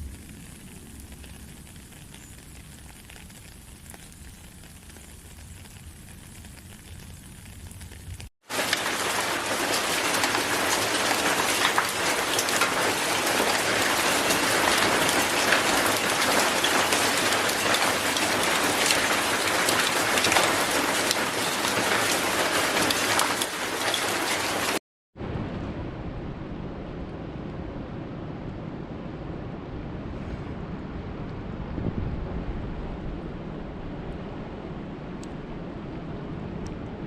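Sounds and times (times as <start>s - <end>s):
heavy rain falling: 0.0s - 24.8s.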